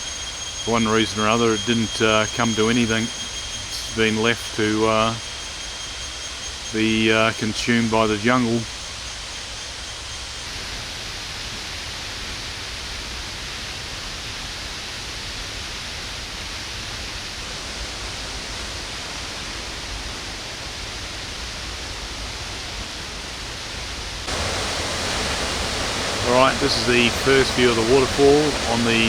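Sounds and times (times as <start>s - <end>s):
waterfall rushing: 24.3s - 29.0s.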